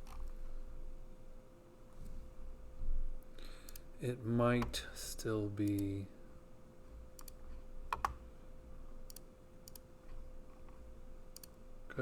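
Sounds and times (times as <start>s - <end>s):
faint steady hum: 0.0s - 12.0s
computer clicks: 5.6s - 5.9s, 7.2s - 8.2s, 9.1s - 9.9s, 11.3s - 11.6s.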